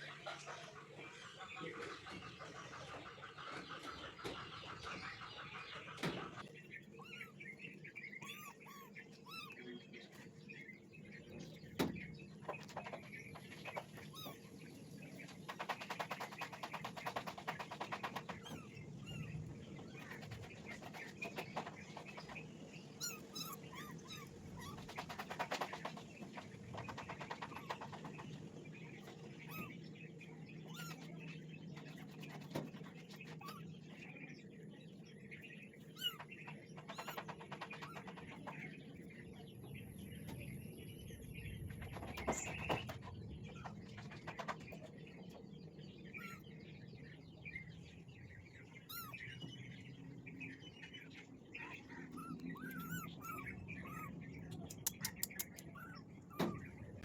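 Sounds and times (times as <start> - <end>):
small birds chirping: 0.0 - 57.0
sharp clicks: 54.6 - 55.7.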